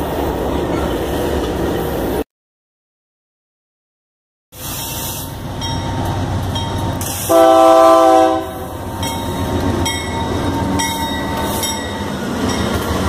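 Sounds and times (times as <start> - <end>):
diesel locomotives rumbling past: 0.0 - 2.2, 4.6 - 13.0
locomotive horn chord: 7.3 - 8.7.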